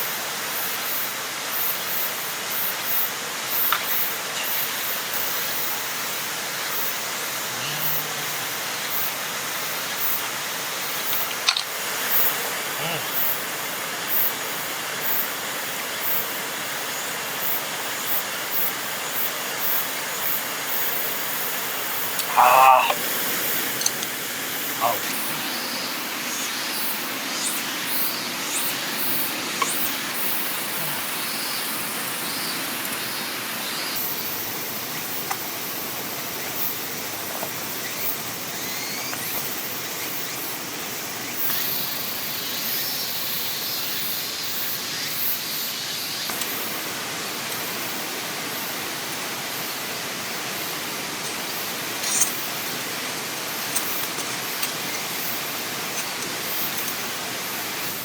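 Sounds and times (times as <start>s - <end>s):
water rushing: 0.0s - 37.8s
small ticks and clicks: 11.0s - 11.8s.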